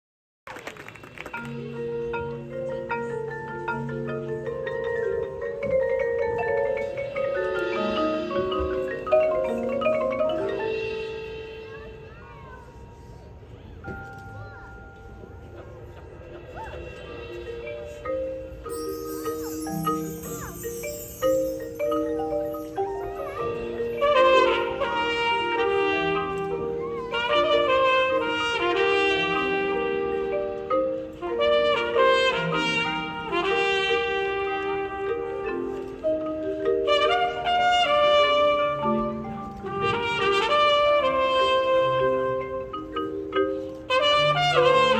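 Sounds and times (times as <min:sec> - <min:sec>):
marching band mallet percussion: 0:00.9 - 0:44.9
trumpets and brass chords: 0:23.3 - 0:35.4, 0:36.8 - 0:42.7, 0:43.8 - 0:44.9.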